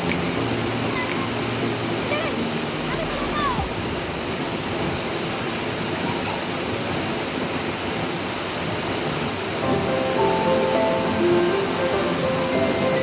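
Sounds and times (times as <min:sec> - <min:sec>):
background music with held notes: 0:00.0 - 0:03.4, 0:09.6 - 0:13.0
waterfall rushing: 0:00.0 - 0:13.0.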